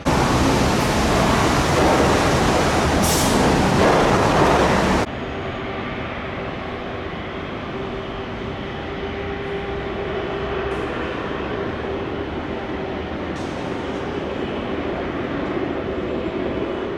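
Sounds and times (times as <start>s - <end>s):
loud rush: 0.0s - 5.1s
steady vehicle noise: 0.0s - 16.9s.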